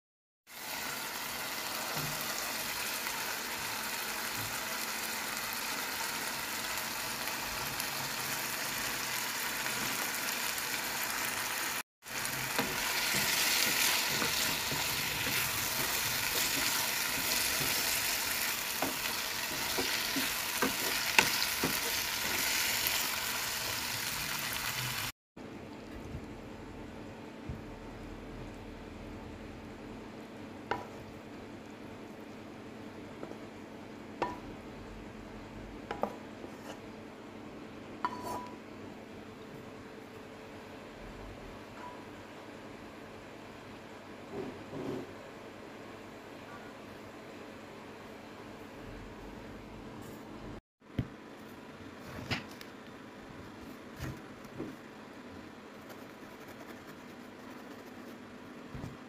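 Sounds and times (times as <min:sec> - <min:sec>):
food sizzling in a wok: 0:00.5 - 0:25.1
spatula scraping and knocking wok: 0:12.1 - 0:23.0.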